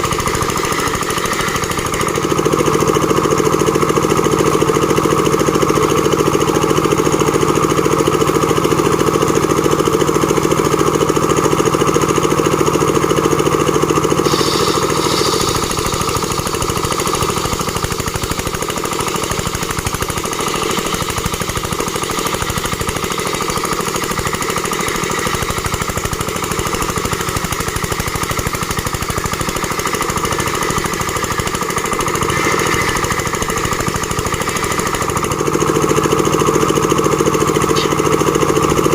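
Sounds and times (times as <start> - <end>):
sawmill machine running: 0.0 - 38.9.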